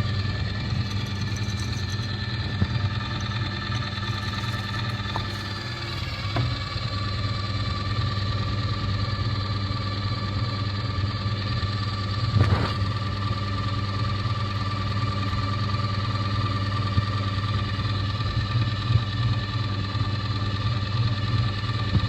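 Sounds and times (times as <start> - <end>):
electric grinder motor humming: 0.0 - 8.5.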